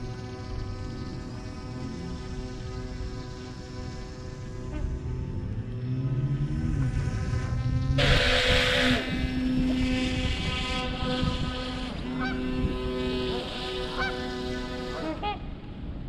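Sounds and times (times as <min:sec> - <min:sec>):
steady hum of held tones: 0:00.0 - 0:16.0
geese honking: 0:10.2 - 0:15.5.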